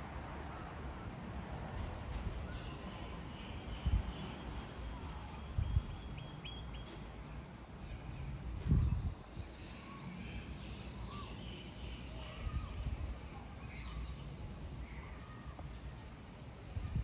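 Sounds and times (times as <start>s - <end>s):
faint bird chirps and whistles: 2.4s - 7.0s.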